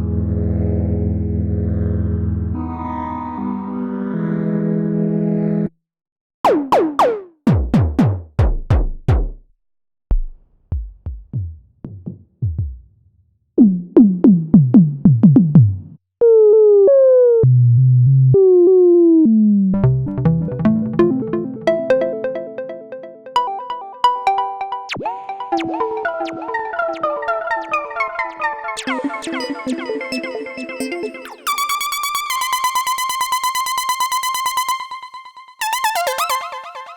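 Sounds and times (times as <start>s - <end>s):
synthesizer lead line gliding: 6.5s - 7.8s, 19.9s - 36.9s
fast arpeggiated synthesizer: 6.5s - 8.0s, 19.9s - 36.9s
synthesizer zaps sweeping down: 6.5s - 8.2s, 24.9s - 33.3s.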